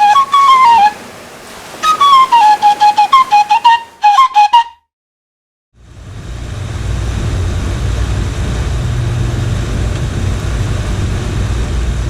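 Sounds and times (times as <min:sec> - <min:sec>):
water noise: 0:00.0 - 0:04.8, 0:05.8 - 0:12.0
wind: 0:00.0 - 0:04.8, 0:05.8 - 0:12.0
boat engine running: 0:05.8 - 0:12.0.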